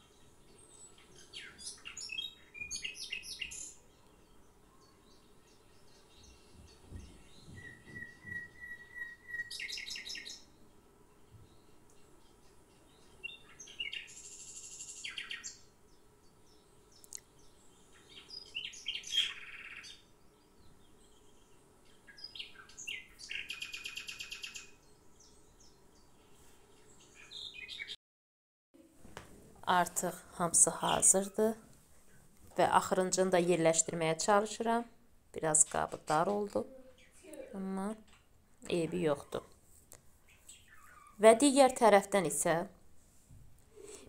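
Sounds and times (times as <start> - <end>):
songbird singing: 0.0 - 28.0, 29.7 - 39.6, 40.2 - 42.6.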